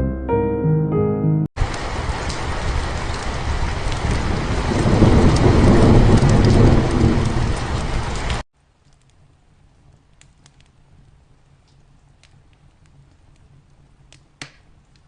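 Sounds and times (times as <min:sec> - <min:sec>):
heavy rain pouring: 0:01.6 - 0:08.4
low rumble of thunder: 0:01.6 - 0:08.4.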